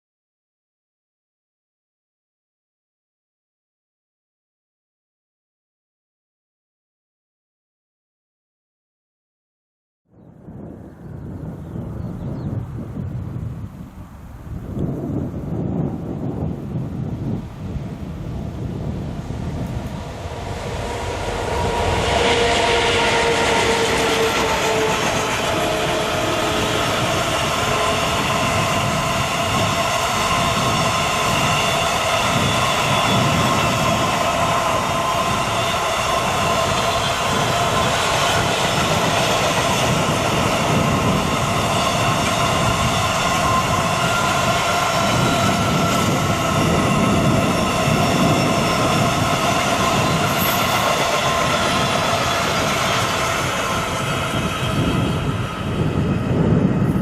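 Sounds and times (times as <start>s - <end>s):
train wheels rumbling on rails: 14.1s - 57.0s.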